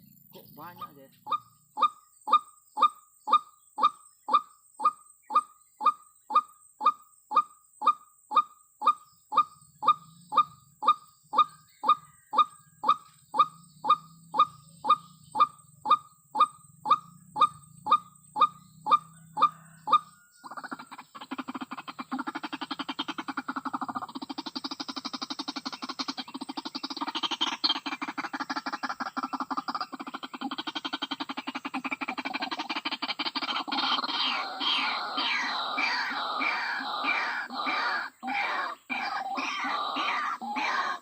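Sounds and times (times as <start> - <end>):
waterhen calling: 0.6 - 41.0.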